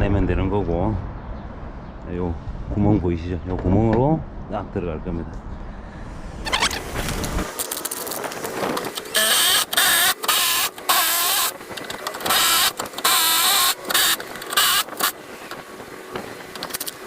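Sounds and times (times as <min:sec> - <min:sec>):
electric power tool bursts: 0:09.0 - 0:11.5, 0:12.2 - 0:15.2.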